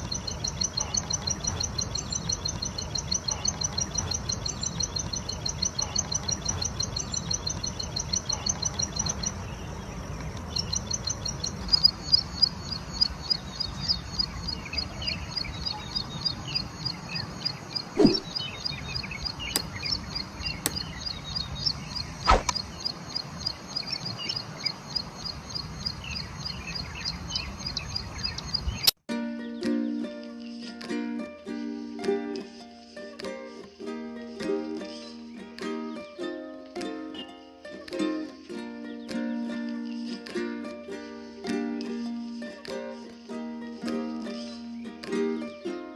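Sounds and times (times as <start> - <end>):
bird chirping rapidly: 0.0 - 29.0
sharp clicks: 19.5 - 20.0, 20.6 - 21.0.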